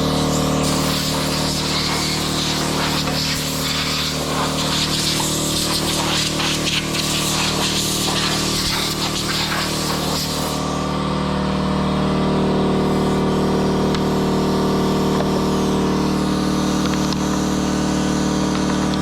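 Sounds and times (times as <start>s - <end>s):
air blast from hose: 0.0s - 11.0s
air compressor motor running: 0.0s - 19.0s.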